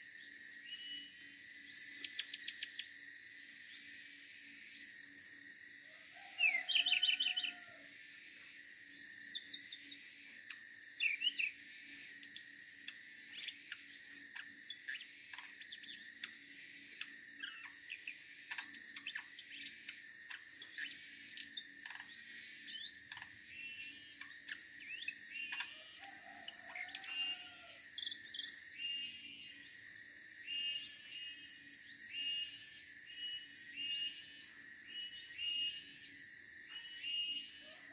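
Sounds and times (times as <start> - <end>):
bird chirping and trilling: 6.3 - 7.6.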